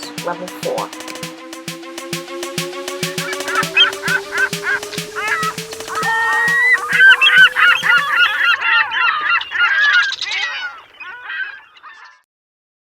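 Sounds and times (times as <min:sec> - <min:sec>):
seagulls squawking: 0:03.0 - 0:12.2.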